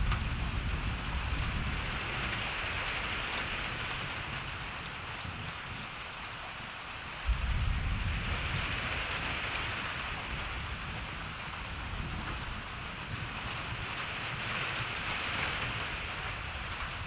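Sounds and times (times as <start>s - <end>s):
thunder rumble: 0.0s - 5.6s, 7.2s - 17.0s
steady rain: 0.0s - 17.0s.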